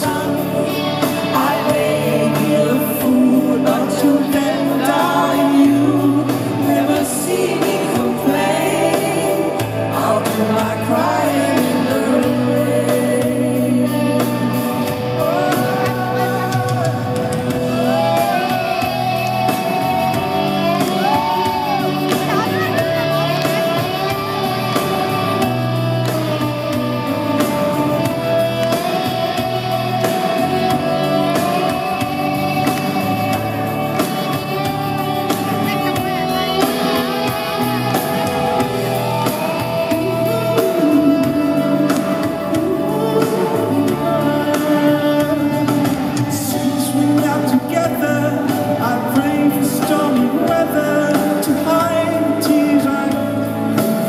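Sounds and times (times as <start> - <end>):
live pop-rock band playing: 0.0 - 54.0.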